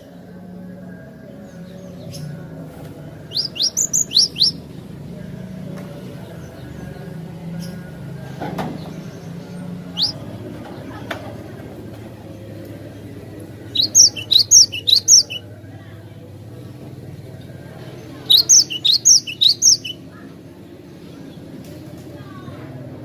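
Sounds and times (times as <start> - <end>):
bird singing high rising notes: 3.3 - 4.6, 10.0 - 10.2, 13.7 - 15.4, 18.2 - 20.0.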